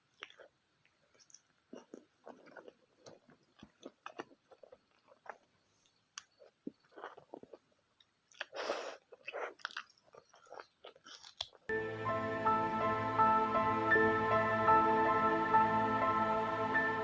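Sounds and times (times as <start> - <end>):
wet chewing and lip smacking: 0.0 - 11.7.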